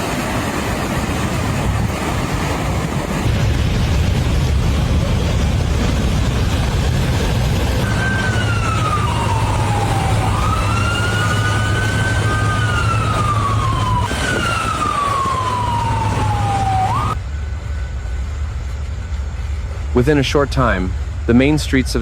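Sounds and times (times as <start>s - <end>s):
steady low rumble: 0.0s - 22.0s
emergency siren wailing: 4.6s - 17.2s.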